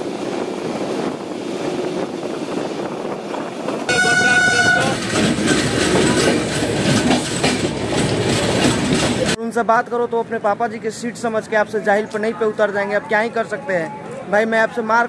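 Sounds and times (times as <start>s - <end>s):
train running rumble: 0.0s - 9.4s
passing train rush and clatter: 0.0s - 15.0s
train horn: 3.9s - 5.0s.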